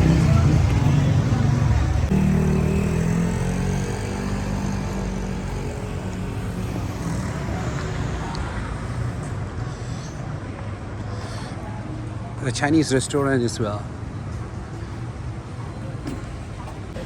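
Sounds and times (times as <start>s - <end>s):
vehicle engine hum: 0.0s - 11.9s
busy city street noise: 0.0s - 17.0s.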